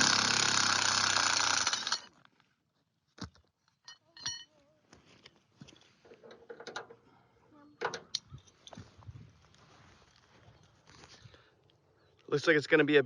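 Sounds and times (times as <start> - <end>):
metallic clinks and knocks: 3.6 - 4.6.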